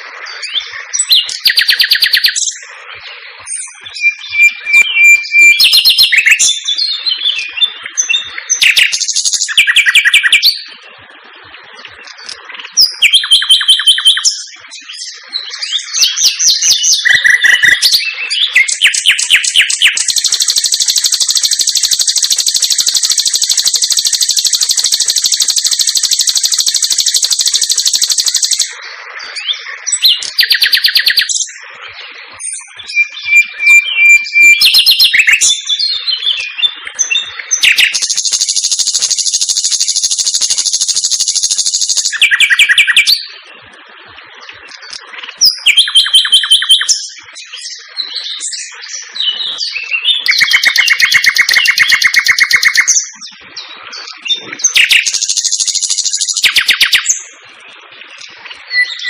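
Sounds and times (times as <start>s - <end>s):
bird chirps and whistles: 0.4s - 2.7s, 3.4s - 10.7s, 12.8s - 28.8s, 29.4s - 31.6s, 32.4s - 43.3s, 44.9s - 53.3s, 54.1s - 57.3s, 58.7s - 59.0s
bird high rapid trills: 8.0s - 10.5s, 16.0s - 28.8s, 37.0s - 43.2s, 50.2s - 53.1s, 54.6s - 57.3s.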